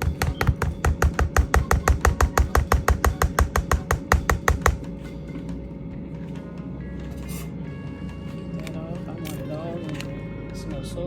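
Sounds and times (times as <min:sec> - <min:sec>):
utensil knocking against pot: 0:00.0 - 0:04.9.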